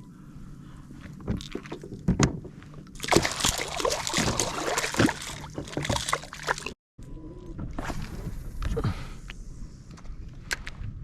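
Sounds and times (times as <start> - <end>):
water splashing at kayak: 3.0 - 6.8.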